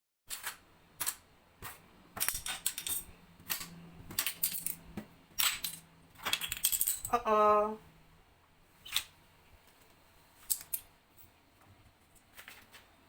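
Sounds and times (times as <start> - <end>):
plastic magnetic letters clacking: 2.2 - 4.8.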